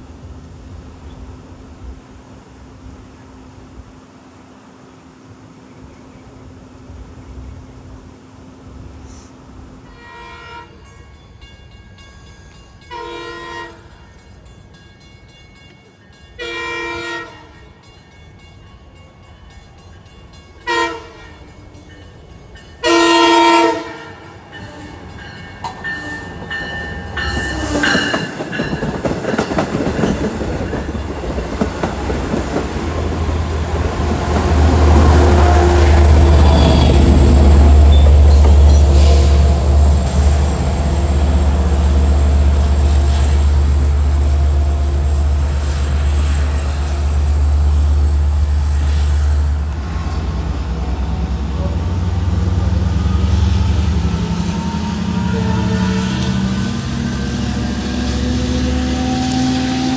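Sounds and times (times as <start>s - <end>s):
train rumble: 0.0s - 59.9s
train horn: 9.8s - 11.0s, 12.9s - 14.2s, 16.4s - 17.8s, 20.6s - 21.7s, 22.8s - 28.4s, 33.2s - 45.4s, 50.8s - 59.9s
rail clatter: 23.8s - 59.9s.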